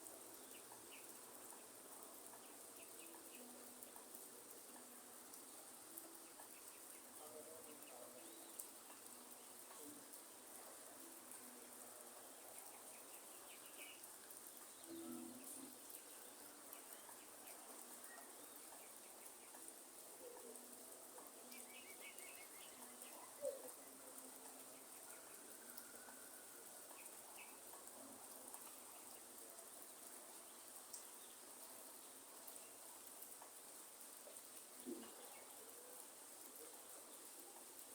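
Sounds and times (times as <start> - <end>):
light rain hiss: 0.0 - 37.9
faint bird chirps: 12.4 - 20.8, 21.4 - 27.8.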